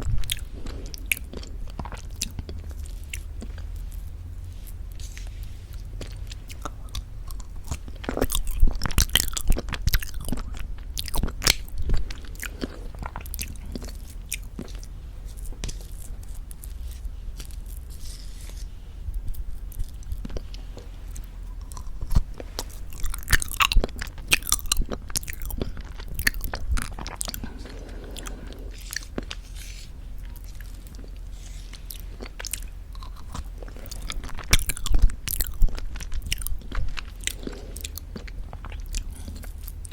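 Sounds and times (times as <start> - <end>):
wet mouth chewing sounds: 0.0 - 39.9.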